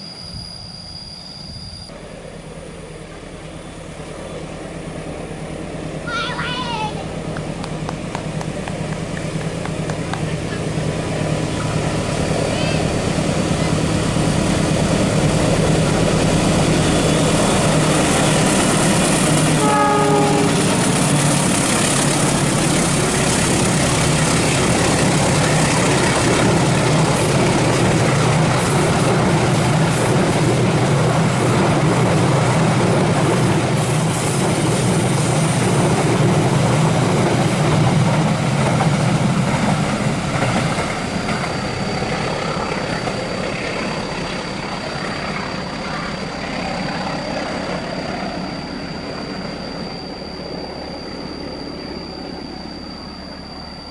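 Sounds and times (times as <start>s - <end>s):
train rumbling and rattling: 0.0s - 53.9s
train horn blast: 19.4s - 21.1s.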